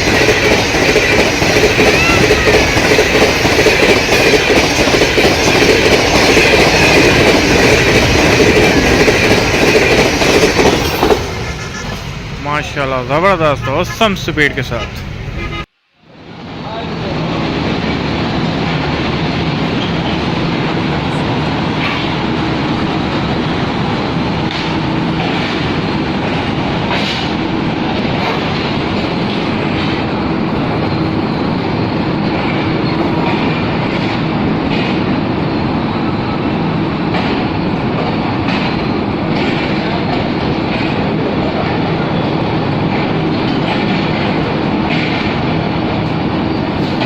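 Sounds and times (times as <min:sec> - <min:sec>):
wheels clacking over rail joints: 0:00.0 - 0:12.2, 0:19.0 - 0:31.0, 0:37.0 - 0:47.0
train wheels rumbling on rails: 0:00.0 - 0:47.0.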